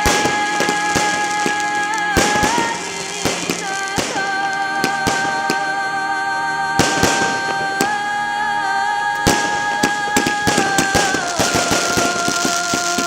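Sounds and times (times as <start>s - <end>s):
fireworks bangs and cracks: 0.0s - 5.7s, 9.2s - 13.0s
music with held high note: 0.0s - 13.0s.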